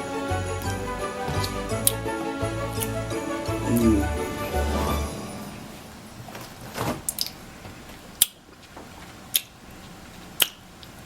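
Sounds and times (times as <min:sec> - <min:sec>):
mouth and lip sounds: 0:03.7 - 0:04.2
person sipping a drink: 0:03.7 - 0:04.2.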